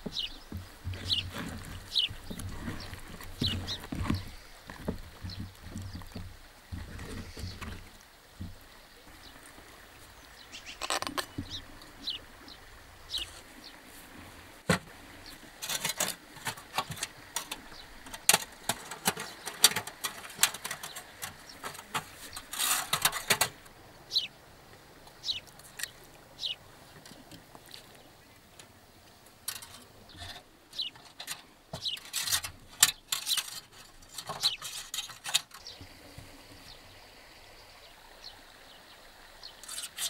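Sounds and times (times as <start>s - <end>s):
rustling handling noise: 0.0s - 8.6s, 13.1s - 23.6s, 29.5s - 35.7s
small birds chirping: 0.0s - 14.2s, 15.0s - 22.6s, 23.2s - 40.0s.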